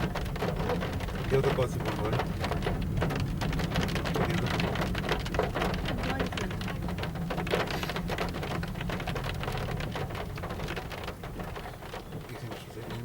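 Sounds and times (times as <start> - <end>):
steady low rumble: 0.0 - 12.8
heavy rain falling: 0.0 - 13.0.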